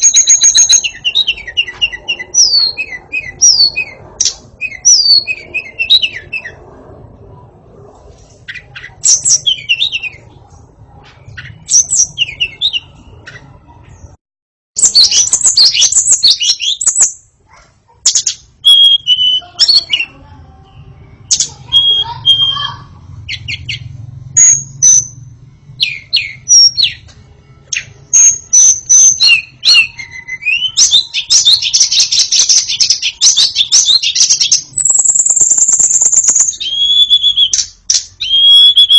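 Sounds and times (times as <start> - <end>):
bird singing whistled phrases: 0.0 - 4.0, 4.6 - 6.6, 14.8 - 17.2, 18.1 - 20.1, 21.2 - 23.8, 27.8 - 38.9.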